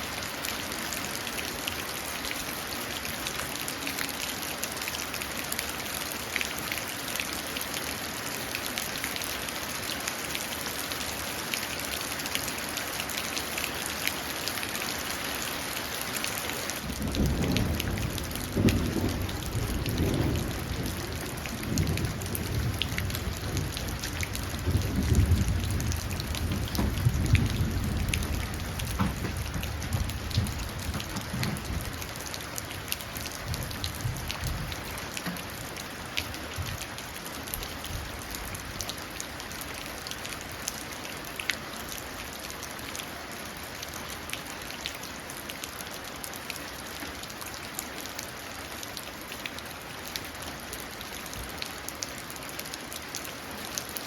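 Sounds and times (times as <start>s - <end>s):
rain falling into puddles: 0.0s - 54.0s
rolling thunder: 16.9s - 32.2s.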